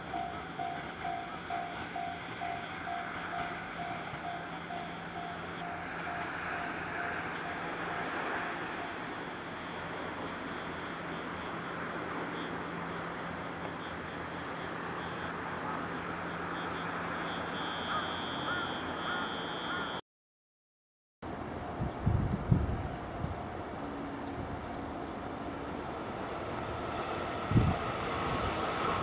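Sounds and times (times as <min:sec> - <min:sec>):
train wheels rolling on rail: 0:00.0 - 0:19.9, 0:21.8 - 0:29.0
high steady tone: 0:28.8 - 0:29.0.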